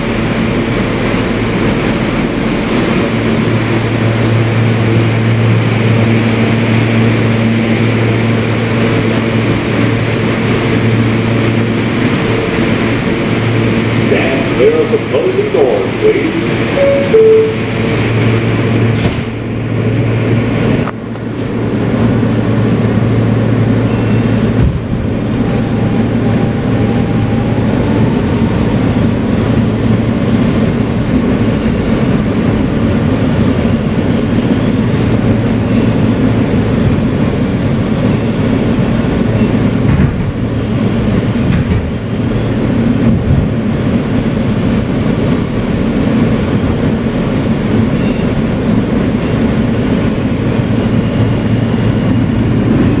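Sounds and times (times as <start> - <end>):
subway wheels rumbling on rails: 0.0 - 53.0.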